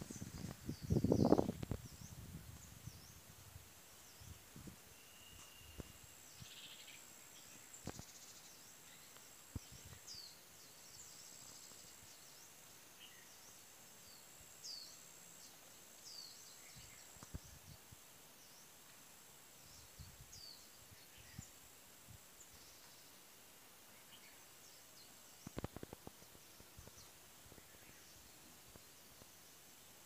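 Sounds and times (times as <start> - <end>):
faint birds chirping: 0.0 - 30.0
faint high-pitched tone: 4.9 - 6.3.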